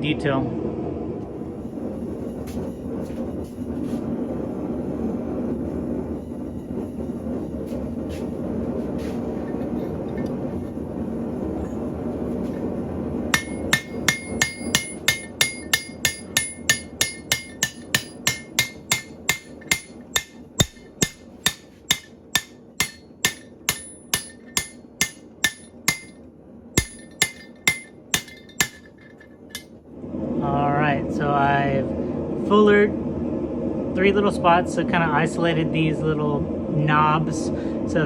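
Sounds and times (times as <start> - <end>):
steady rushing noise: 0.2 - 38.0
hammer striking metal with ring: 13.3 - 26.2, 26.8 - 29.7.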